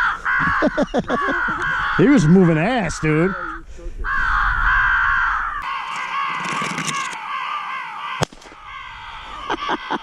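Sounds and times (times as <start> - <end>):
crows cawing: 0.0 - 10.0
shotgun shot: 8.2 - 8.7.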